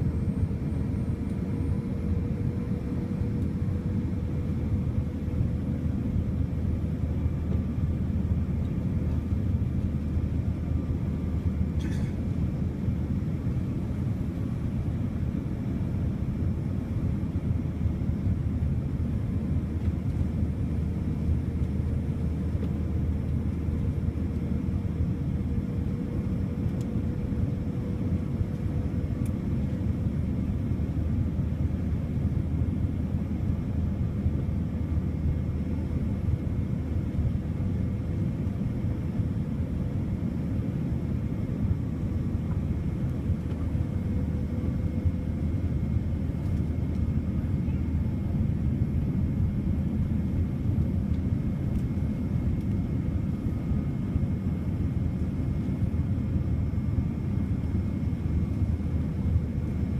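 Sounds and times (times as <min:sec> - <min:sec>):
airliner cabin rumble: 0:00.0 - 0:59.9
faint steady hum: 0:00.0 - 0:59.9.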